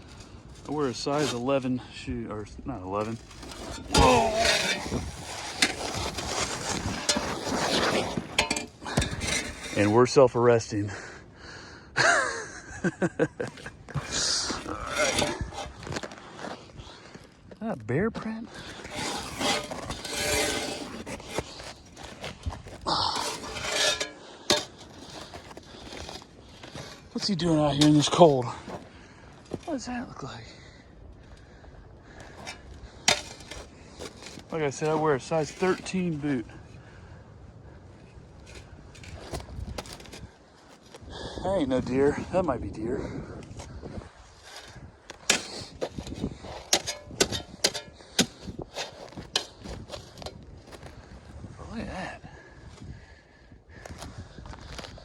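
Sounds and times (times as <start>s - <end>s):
footsteps crunching through snow: 14.0s - 17.4s
footsteps crunching on icy snow: 14.0s - 24.0s.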